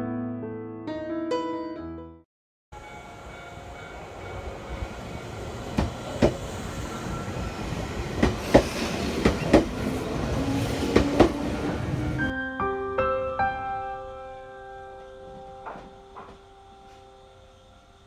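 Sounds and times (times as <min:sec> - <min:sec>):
train wheels clacking over rail joints: 0:05.4 - 0:12.3.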